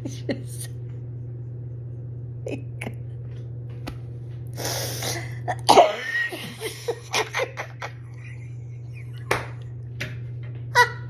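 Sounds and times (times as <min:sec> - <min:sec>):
woman laughing hard: 0:05.8 - 0:09.3.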